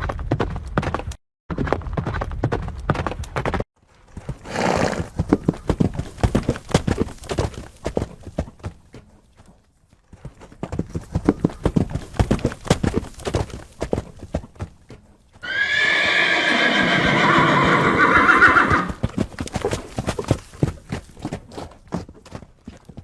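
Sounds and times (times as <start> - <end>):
horse hooves clopping: 0.0 - 23.0
horse whinnying: 4.4 - 5.1, 15.4 - 19.0.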